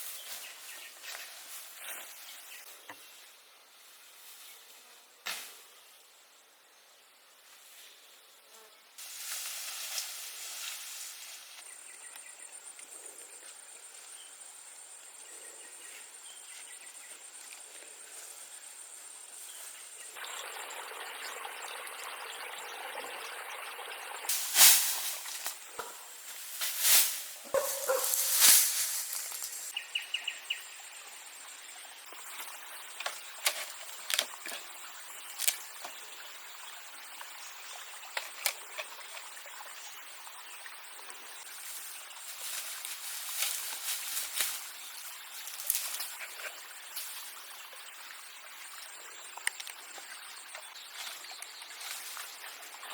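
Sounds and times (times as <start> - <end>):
insect buzzing: 24.3 - 29.8.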